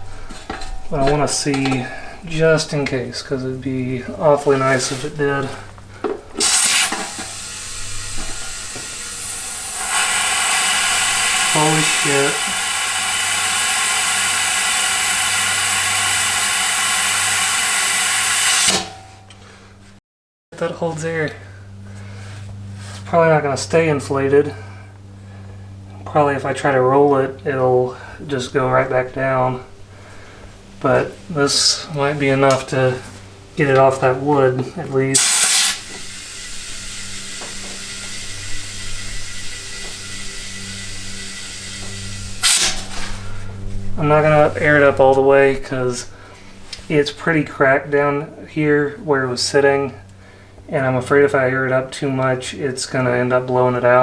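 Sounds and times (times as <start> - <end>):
steady low hum: 0.0 - 17.8, 20.6 - 54.0
compressed air hissing into tire: 4.4 - 19.1, 35.0 - 46.9.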